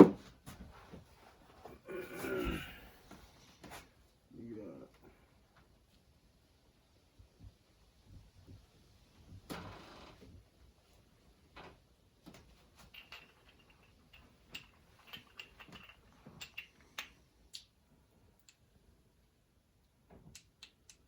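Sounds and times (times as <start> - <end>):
small metal parts clicking: 12.8 - 17.8.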